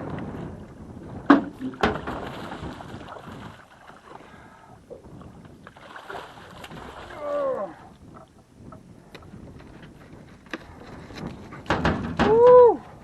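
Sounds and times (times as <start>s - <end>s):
water lapping: 1.4s - 8.4s
fish thrashing and splashing: 1.7s - 4.1s, 5.7s - 7.2s.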